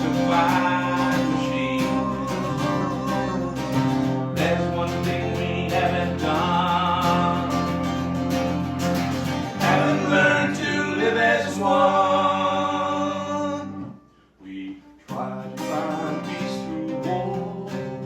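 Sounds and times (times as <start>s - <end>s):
person singing: 0.0s - 8.2s, 9.6s - 18.0s
bass line: 0.0s - 14.0s
strummed acoustic guitar: 0.0s - 18.0s.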